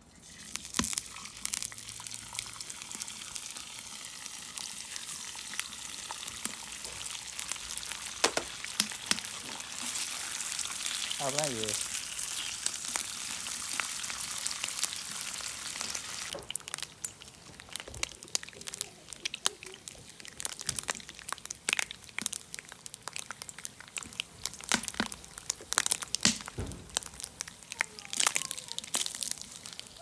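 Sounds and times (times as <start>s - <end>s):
food sizzling in a frying pan: 0.0s - 30.0s
crackles and crinkling clicks: 8.2s - 10.0s, 15.8s - 30.0s.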